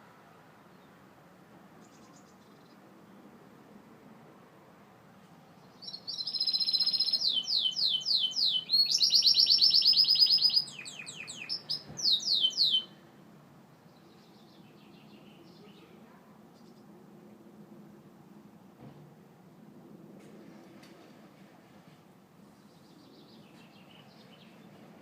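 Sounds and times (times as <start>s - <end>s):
canary singing trills: 5.7s - 13.0s
soft bird chirps: 5.7s - 13.0s.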